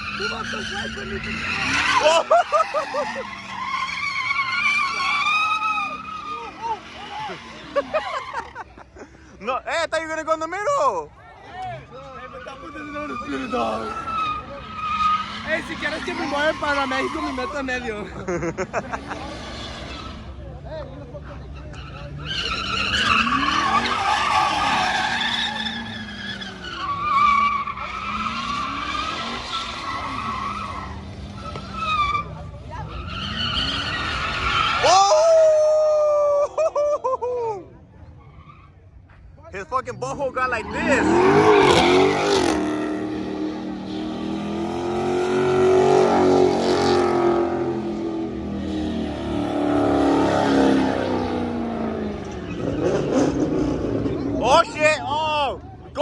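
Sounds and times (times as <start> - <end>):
car engine revving: 0.0 - 8.8, 12.0 - 34.9, 40.2 - 56.0
tyres squealing: 0.0 - 8.9, 11.8 - 20.4, 21.2 - 35.8, 39.7 - 55.2
engine revving: 40.4 - 54.8.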